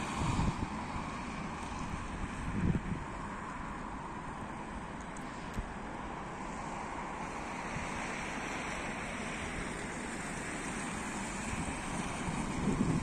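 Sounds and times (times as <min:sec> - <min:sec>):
wind on microphone: 0:00.0 - 0:03.3, 0:11.0 - 0:13.0
distant train rolling on rails: 0:00.0 - 0:13.0.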